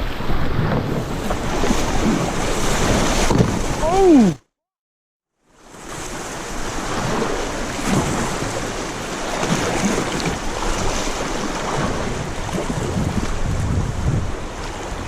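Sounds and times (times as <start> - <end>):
rushing river water: 0.0 - 4.4, 5.6 - 15.0
wind noise on microphone: 9.4 - 15.0.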